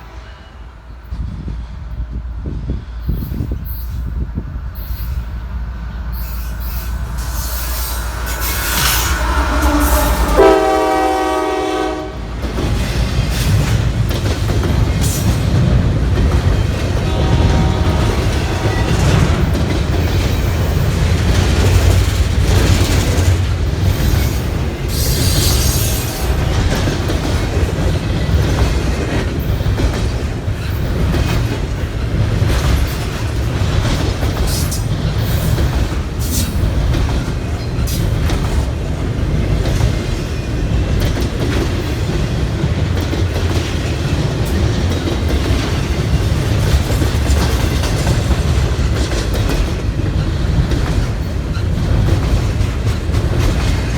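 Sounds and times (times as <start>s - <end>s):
train rolling past rumbling: 0.0s - 53.9s
wheels clacking over rail joints: 6.1s - 53.9s
train air horn: 6.6s - 12.4s, 16.9s - 19.6s.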